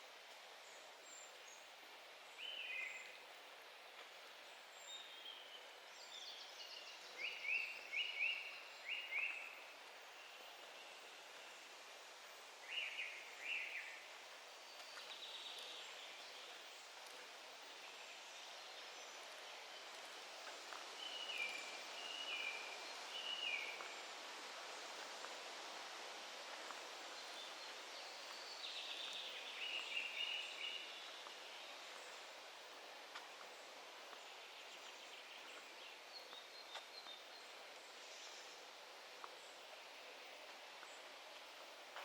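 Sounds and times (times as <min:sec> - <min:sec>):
forest ambience hiss: 0:00.0 - 0:42.0
songbirds singing: 0:00.6 - 0:11.8, 0:12.6 - 0:25.8, 0:26.6 - 0:42.0.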